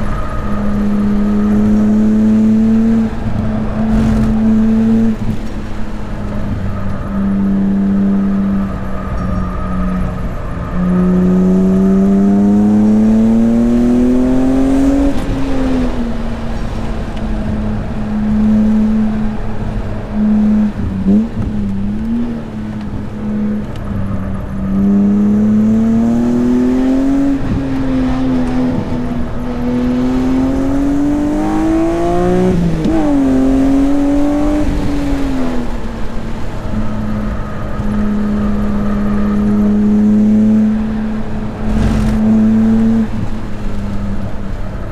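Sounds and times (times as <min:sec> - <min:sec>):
car engine accelerating hard: 0:00.0 - 0:44.9.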